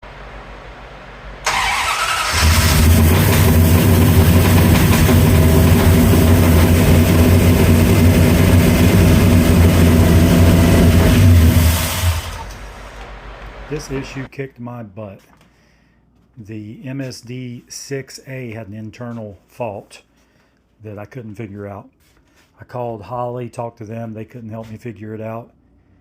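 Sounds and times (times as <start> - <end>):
car engine idling: 0.1 - 14.3
car starter cranking: 1.4 - 7.5.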